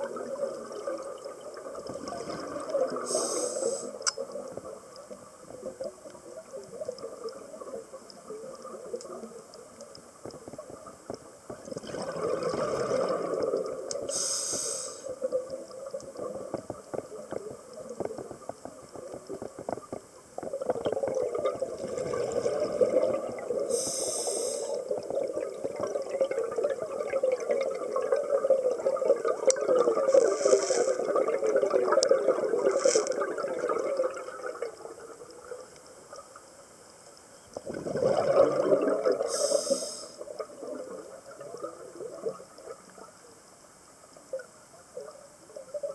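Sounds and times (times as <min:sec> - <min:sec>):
regulator inhale hiss: 0:03.0 - 0:04.0, 0:14.0 - 0:15.2, 0:23.7 - 0:25.0, 0:30.2 - 0:31.0, 0:39.2 - 0:40.3
exhaust bubbles rushing: 0:11.8 - 0:13.8, 0:37.7 - 0:39.2.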